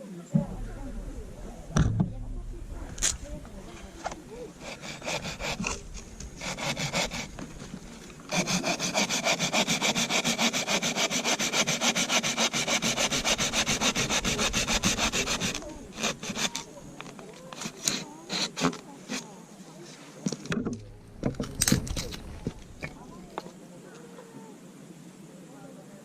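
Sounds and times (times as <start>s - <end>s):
hand saw cutting wood: 3.0s - 16.8s, 17.5s - 19.2s, 21.2s - 23.2s.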